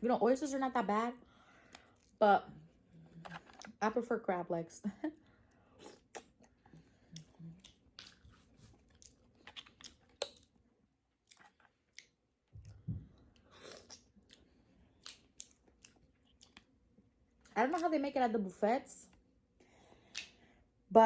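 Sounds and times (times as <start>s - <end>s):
wet chewing smacks and clicks: 5.8s - 10.6s, 11.2s - 12.8s, 13.4s - 16.8s.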